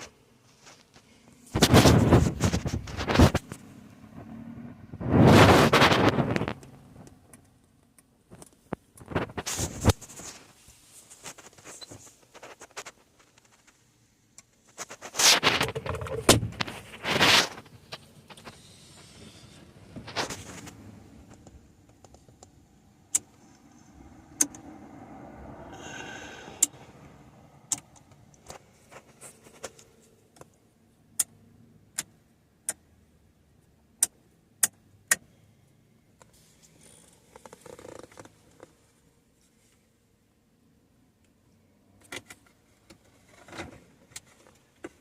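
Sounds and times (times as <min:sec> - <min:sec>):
rustling handling noise: 0:08.3 - 0:21.4, 0:28.4 - 0:30.4.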